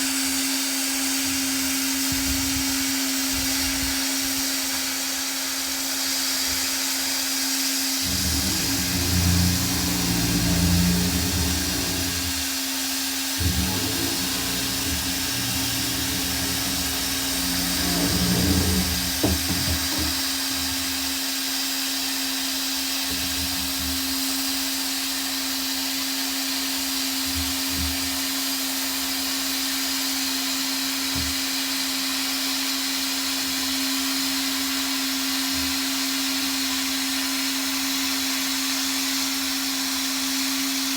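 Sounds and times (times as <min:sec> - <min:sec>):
low rumbles: 0:08.1 - 0:12.4, 0:13.4 - 0:20.2
soft knocks: 0:08.1 - 0:12.4, 0:13.4 - 0:20.8.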